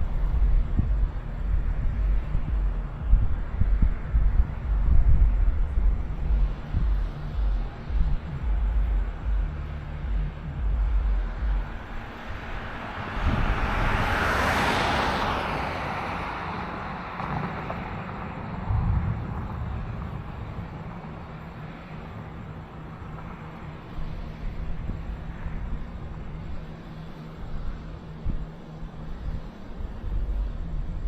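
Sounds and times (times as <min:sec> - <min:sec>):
low rumbles: 0:00.0 - 0:15.4, 0:17.1 - 0:26.5, 0:27.4 - 0:31.0
vehicle passing by: 0:11.9 - 0:21.9.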